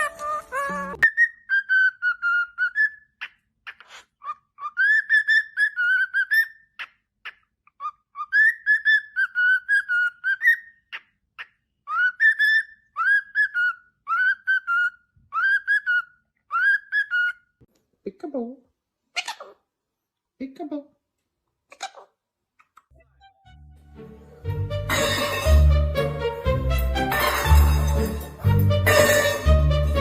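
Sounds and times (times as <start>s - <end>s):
parrot whistling: 0.0s - 6.8s, 7.8s - 11.0s, 11.9s - 17.5s.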